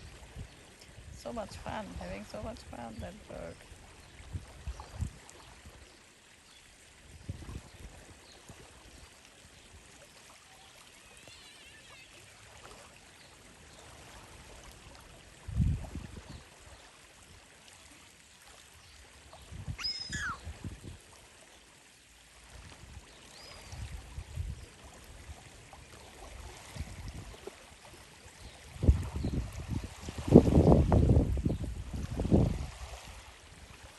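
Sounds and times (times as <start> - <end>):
water trickling and splashing: 0.0 - 33.9
short bird calls: 19.8 - 20.4.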